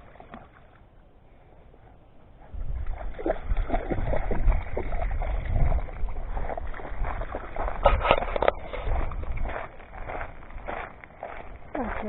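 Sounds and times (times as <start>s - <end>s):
dog splashing in shallow water: 0.0s - 1.0s, 2.4s - 12.0s
low microphone rumble: 2.4s - 12.0s.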